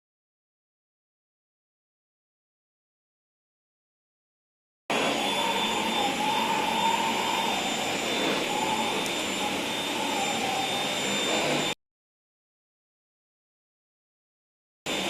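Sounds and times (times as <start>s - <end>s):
vacuum cleaner running: 4.9s - 11.8s.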